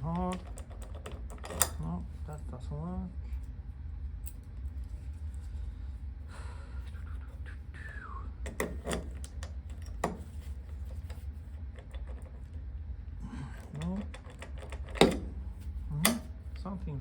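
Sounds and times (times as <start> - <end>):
key rattling in lock: 0.0 - 1.8, 13.6 - 15.3
low hum: 0.0 - 17.0.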